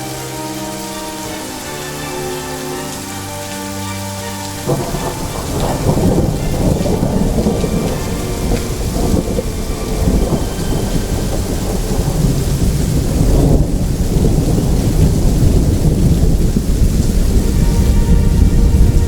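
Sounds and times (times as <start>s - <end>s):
steady rain: 0.0s - 19.0s
rolling thunder: 4.6s - 19.0s.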